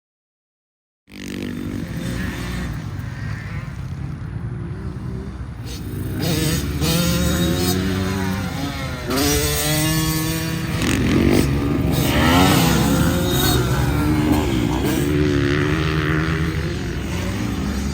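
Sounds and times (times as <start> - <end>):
dirt bike engine revving: 1.1 - 17.9.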